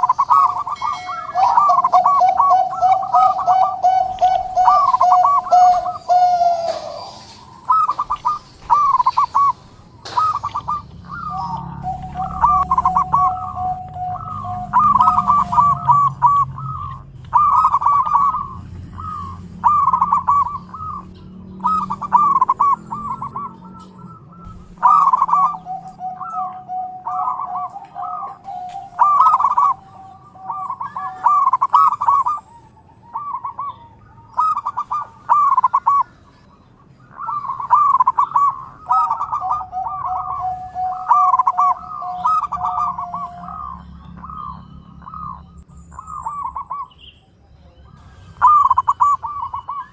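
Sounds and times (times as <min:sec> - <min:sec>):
dove cooing: 0:00.0 - 0:46.9, 0:48.0 - 0:49.9.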